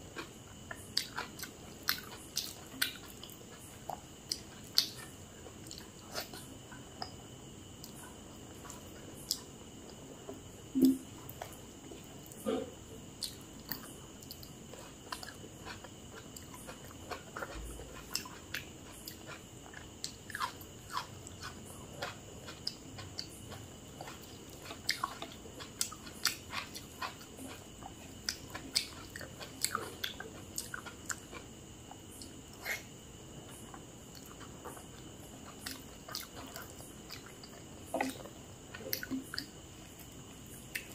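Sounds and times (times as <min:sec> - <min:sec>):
person chewing food: 0:00.0 - 0:07.2, 0:07.8 - 0:40.9
faint high-pitched hum: 0:00.0 - 0:40.9
food crunching: 0:00.1 - 0:06.4, 0:13.2 - 0:32.8.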